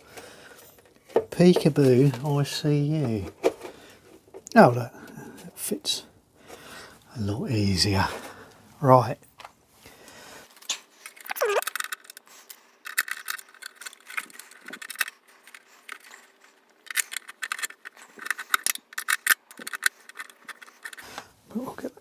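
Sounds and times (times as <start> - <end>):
metal tools clinking: 0.5 - 3.9.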